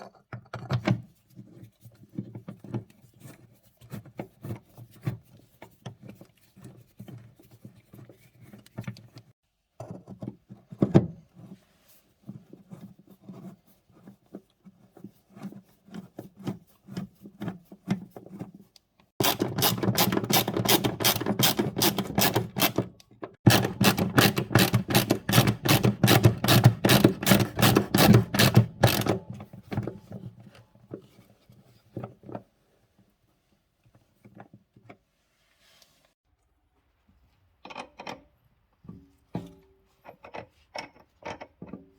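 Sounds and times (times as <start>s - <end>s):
hand tool rasping clicks: 23.5s - 29.2s.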